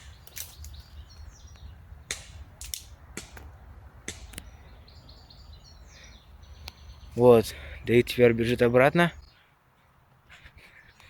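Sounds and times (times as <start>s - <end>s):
bullets ricocheting: 2.1s - 4.5s.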